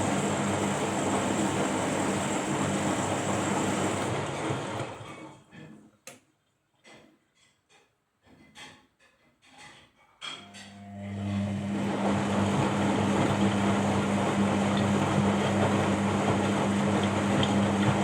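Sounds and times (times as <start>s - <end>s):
washing machine running: 0.0s - 5.7s, 10.4s - 18.0s.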